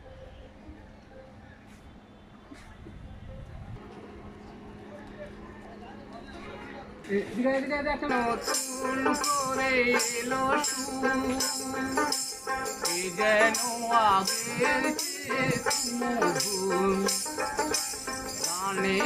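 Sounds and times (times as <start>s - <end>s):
person singing: 7.2s - 19.0s
jingling percussion: 8.4s - 19.0s.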